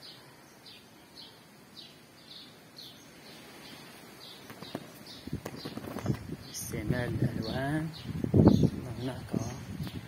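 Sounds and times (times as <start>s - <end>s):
outdoor background noise: 0.0s - 10.0s
small bird chirping: 0.0s - 10.0s.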